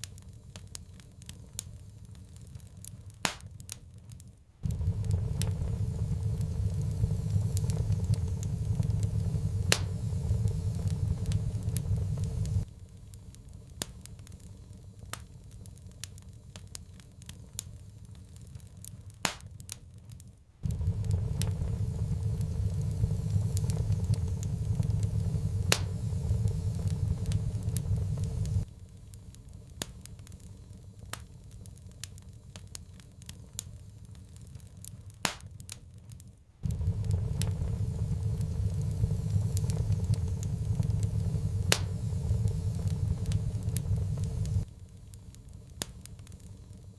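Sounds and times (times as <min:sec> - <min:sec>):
wood fire crackling and popping: 0:00.0 - 0:46.9
loud low rumble: 0:04.6 - 0:12.7, 0:20.6 - 0:28.7, 0:36.6 - 0:44.7.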